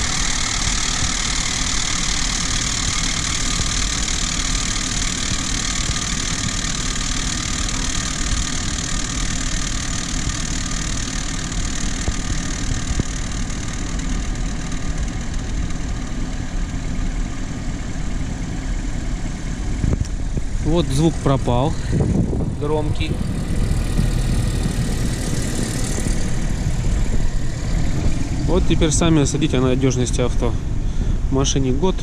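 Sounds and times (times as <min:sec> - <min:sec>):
engine knocking: 0:00.0 - 0:30.6
car engine idling: 0:00.0 - 0:32.0.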